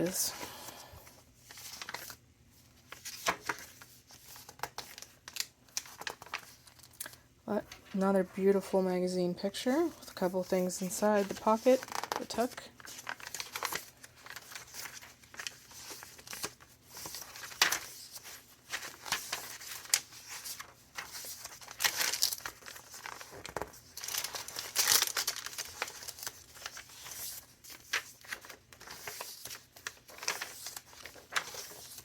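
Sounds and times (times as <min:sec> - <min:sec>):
paper rustling and crinkling: 0:00.0 - 0:08.4, 0:09.8 - 0:32.0.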